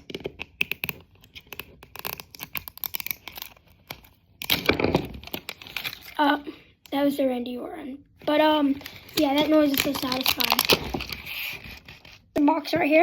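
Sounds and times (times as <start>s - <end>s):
packaging tearing: 0.6s - 6.2s, 8.8s - 12.3s
packaging crinkling: 0.7s - 6.2s, 8.7s - 12.3s.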